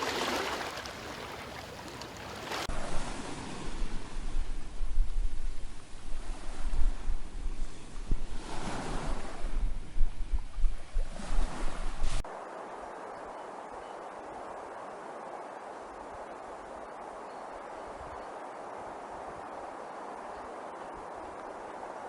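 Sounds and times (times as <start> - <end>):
surf washing onto beach: 0.0 - 3.7
wind buffeting microphone: 0.0 - 12.2.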